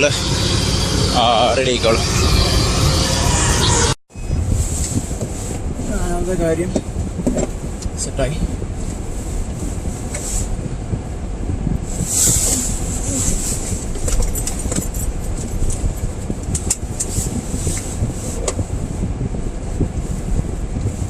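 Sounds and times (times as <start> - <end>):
car rumbling in snow: 0.0 - 21.0.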